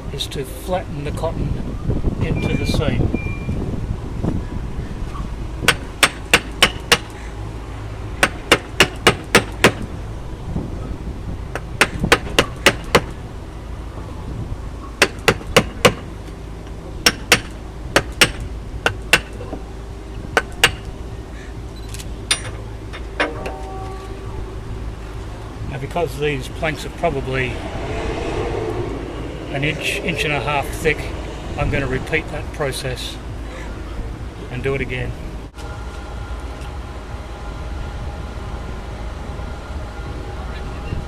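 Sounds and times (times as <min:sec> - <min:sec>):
mallet striking iron: 0:05.7 - 0:07.1, 0:08.2 - 0:09.8, 0:15.0 - 0:16.0, 0:17.0 - 0:19.6, 0:20.4 - 0:20.9, 0:22.3 - 0:23.8.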